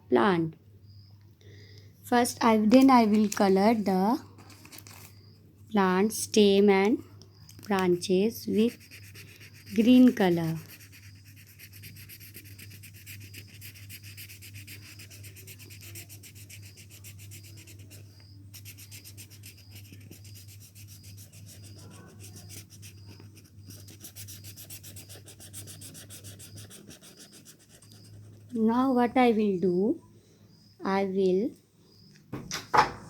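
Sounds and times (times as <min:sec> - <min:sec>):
colouring tool scratching paper: 0:08.4 - 0:28.7.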